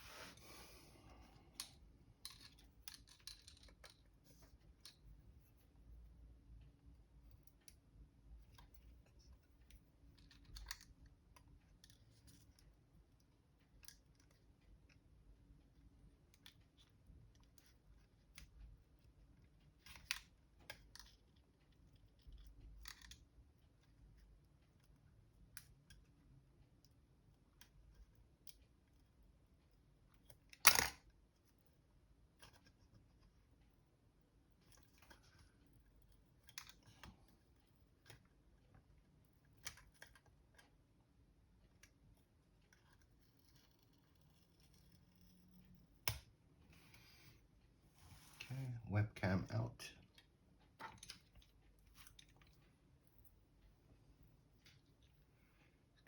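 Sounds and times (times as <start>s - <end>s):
small tools clicking and tapping: 1.6s - 4.1s.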